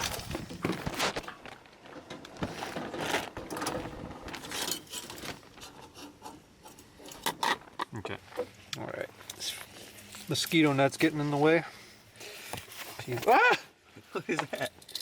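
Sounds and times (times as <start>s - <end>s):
gear being rummaged through: 0.0s - 5.8s.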